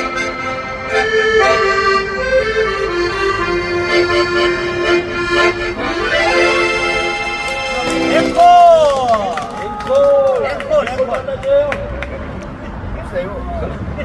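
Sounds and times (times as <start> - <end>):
accordion playing slow melody: 0.0 - 8.5.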